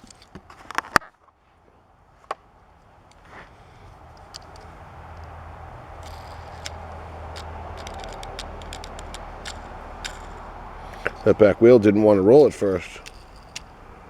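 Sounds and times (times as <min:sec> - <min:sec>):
toy car clicking: 0:00.0 - 0:01.0, 0:03.1 - 0:14.0
low steady hum: 0:00.0 - 0:14.0
plastic packaging crackling: 0:03.9 - 0:11.4.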